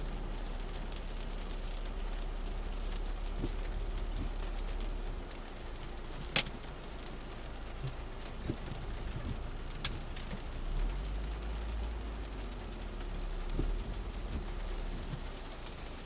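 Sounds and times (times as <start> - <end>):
low engine hum: 0.0 - 16.0
rain falling on a car: 0.0 - 16.0.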